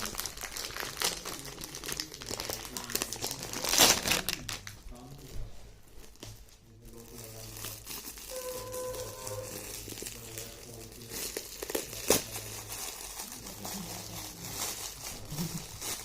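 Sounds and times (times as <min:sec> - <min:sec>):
wrapping paper tearing and crinkling: 0:00.0 - 0:05.3, 0:06.0 - 0:16.0.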